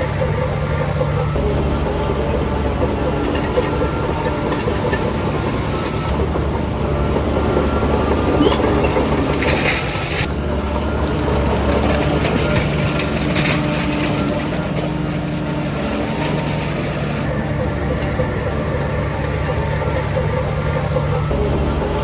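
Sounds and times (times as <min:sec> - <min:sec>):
heavy diesel machinery running: 0:00.0 - 0:22.0.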